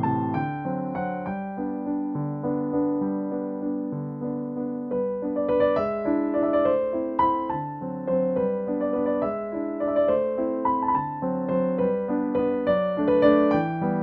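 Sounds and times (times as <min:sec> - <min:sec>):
background piano music: 0:00.0 - 0:14.0.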